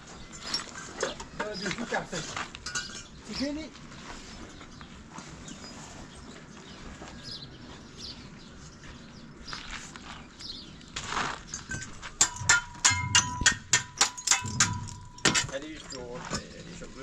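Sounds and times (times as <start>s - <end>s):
sharp metallic clinks: 2.6s - 3.2s, 11.5s - 16.6s.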